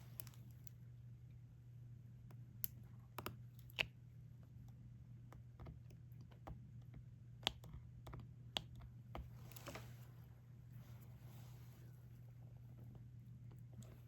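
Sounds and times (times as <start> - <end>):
faint steady low hum: 0.0 - 14.0
drill pen clicking and tapping: 5.3 - 9.3.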